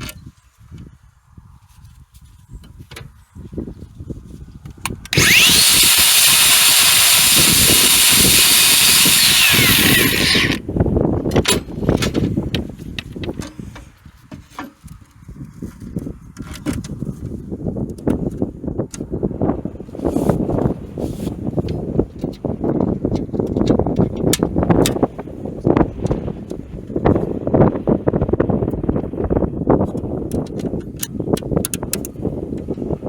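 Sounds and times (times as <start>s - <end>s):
power tool grinding metal: 5.2s - 10.6s.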